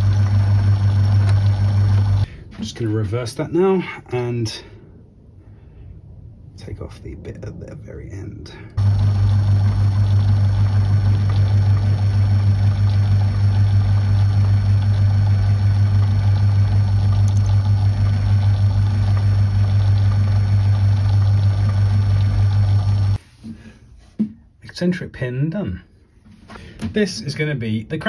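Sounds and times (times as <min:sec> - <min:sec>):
metal lathe humming: 0:00.0 - 0:02.3, 0:08.8 - 0:23.2.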